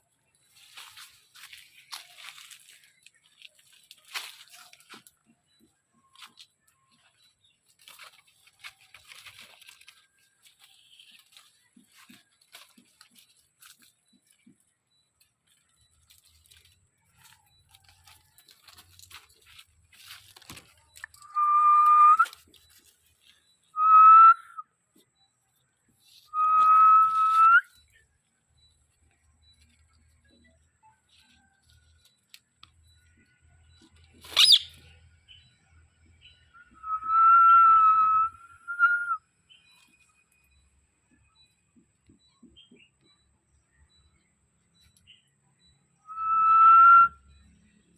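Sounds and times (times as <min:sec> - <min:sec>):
faint clicks and rustles: 0:00.3 - 0:21.4, 0:22.2 - 0:23.7, 0:27.0 - 0:34.4
parrot whistling: 0:23.8 - 0:24.6, 0:34.3 - 0:34.7, 0:36.8 - 0:39.2, 0:46.1 - 0:47.2.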